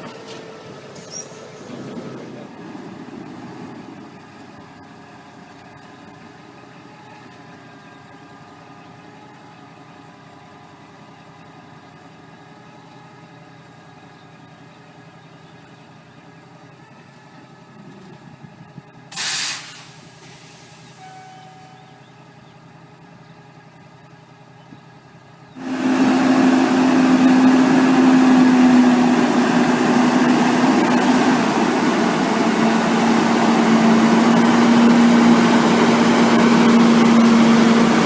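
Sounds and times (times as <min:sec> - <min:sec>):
diesel engine idling: 0:00.0 - 0:38.0
air brakes hissing: 0:19.1 - 0:22.0.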